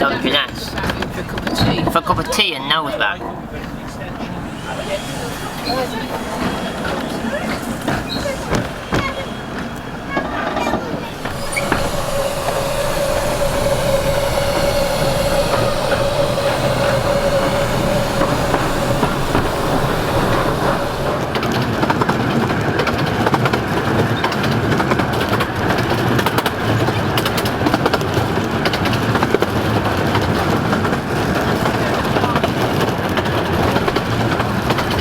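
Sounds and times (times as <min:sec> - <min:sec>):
train rumbling on track: 0:00.0 - 0:35.0
wheels clacking over rail joints: 0:03.2 - 0:22.4
wheel squeal: 0:03.6 - 0:22.3.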